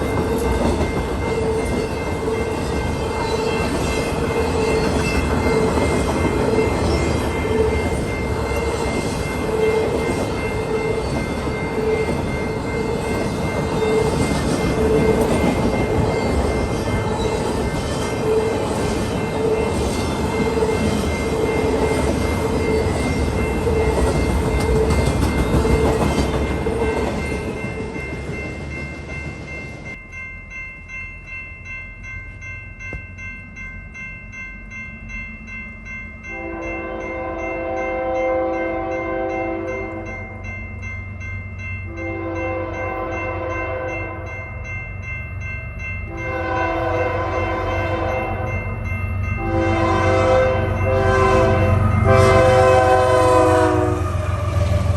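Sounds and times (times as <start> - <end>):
train rumbling past: 0.0 - 32.4, 33.1 - 54.9
locomotive horn blasts: 36.3 - 40.1, 41.9 - 44.3, 46.2 - 48.5, 49.4 - 54.5.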